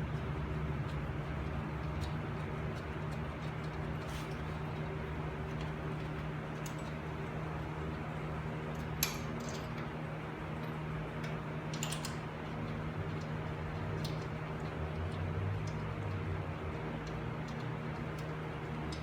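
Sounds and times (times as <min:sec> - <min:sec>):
metallic clicks of tools: 0:11.2 - 0:12.2.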